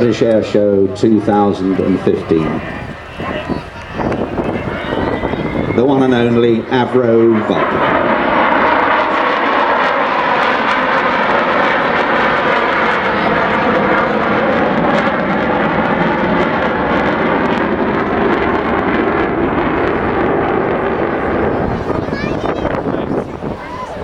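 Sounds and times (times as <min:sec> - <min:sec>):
jet engines roaring overhead: 0:00.0 - 0:24.0.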